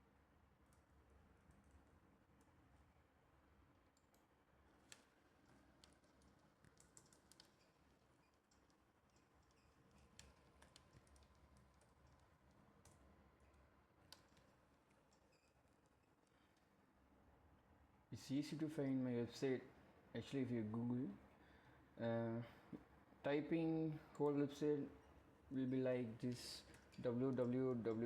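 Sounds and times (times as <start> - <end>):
low room hum: 0.0 - 28.0
computer keys clicking: 3.9 - 16.3.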